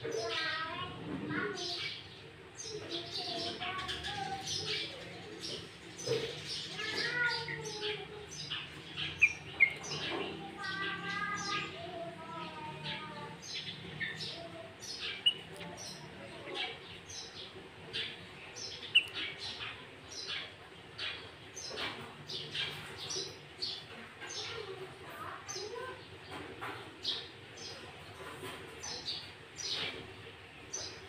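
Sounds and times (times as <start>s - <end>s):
bird singing fast song: 2.0s - 24.6s.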